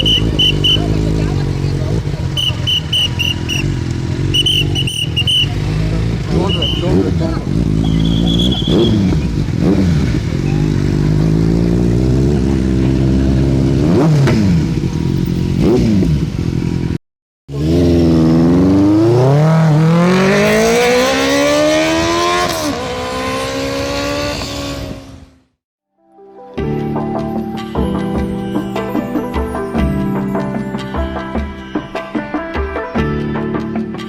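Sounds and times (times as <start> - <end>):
motorcycle engine revving: 0.0 - 25.6.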